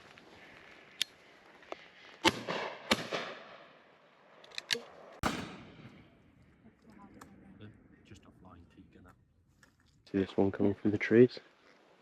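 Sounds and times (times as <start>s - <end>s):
faint cracks: 0.0s - 2.4s, 9.0s - 12.0s
shotgun shots echoing: 2.2s - 3.7s, 4.7s - 6.4s.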